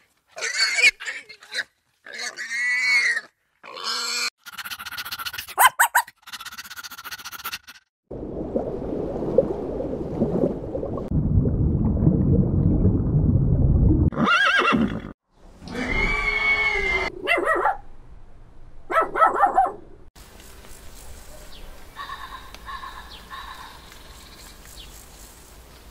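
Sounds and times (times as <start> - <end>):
horse neighing: 14.1 - 15.1, 15.7 - 17.1.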